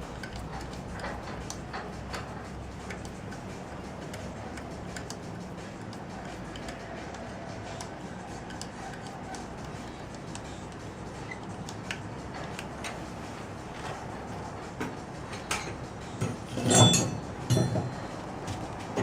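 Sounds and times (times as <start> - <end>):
light clicks and ticks: 0.0 - 13.0
low background hum: 0.0 - 19.0.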